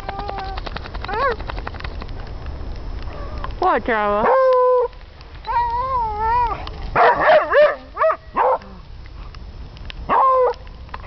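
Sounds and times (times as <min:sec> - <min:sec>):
dog whine-howling: 0:04.2 - 0:06.7
dog yelping and barking: 0:04.2 - 0:08.6, 0:10.1 - 0:10.6.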